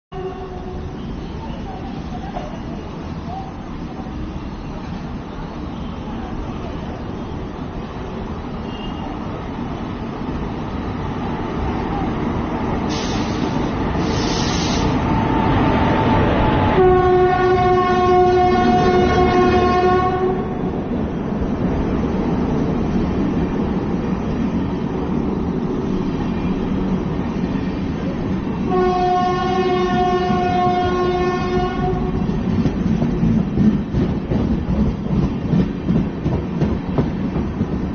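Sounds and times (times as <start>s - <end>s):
train horn blast: 0.1s - 1.0s, 16.8s - 20.6s, 28.6s - 32.3s
train rumbling on track: 0.1s - 37.9s.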